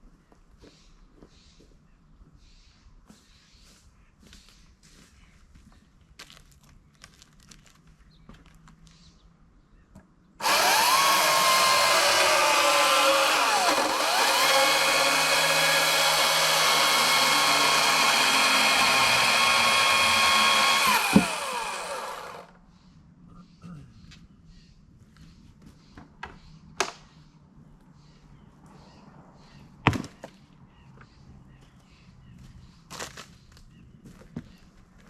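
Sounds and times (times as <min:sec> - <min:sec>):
electric chainsaw whining: 0:10.4 - 0:22.5.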